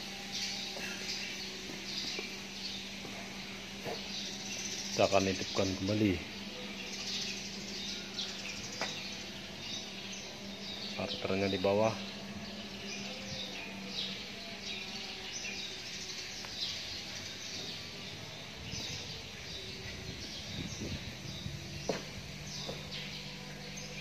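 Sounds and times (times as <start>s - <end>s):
birds chirping: 0.0s - 24.0s
faint low hum: 0.0s - 24.0s.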